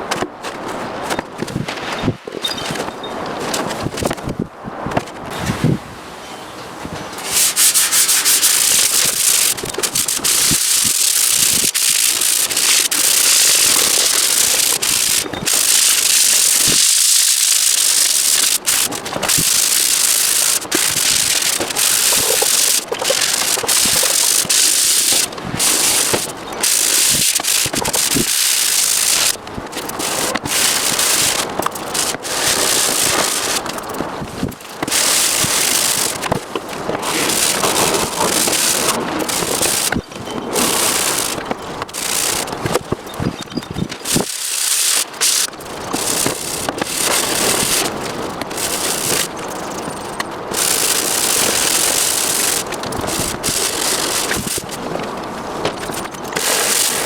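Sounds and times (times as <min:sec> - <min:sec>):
sanding a hard surface: 0:07.2 - 0:33.7, 0:34.8 - 0:36.4, 0:37.0 - 0:42.6.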